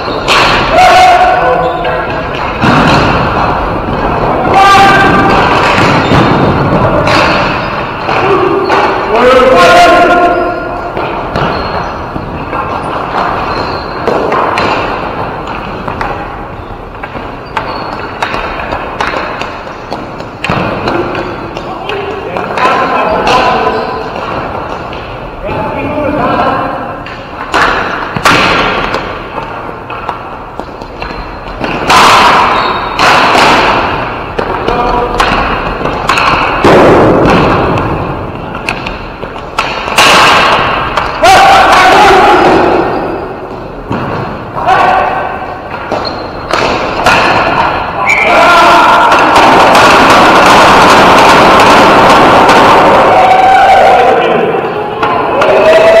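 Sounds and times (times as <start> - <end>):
sticks and ball clacking: 0.0 - 56.0
thuds: 2.2 - 9.0.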